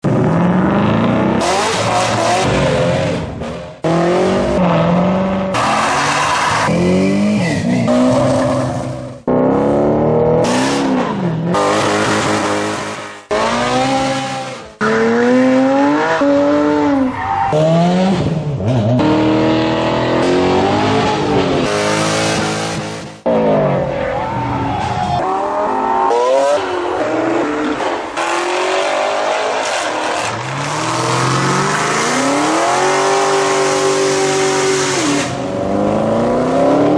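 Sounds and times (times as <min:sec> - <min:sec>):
car engines revving: 0:00.0 - 0:36.9.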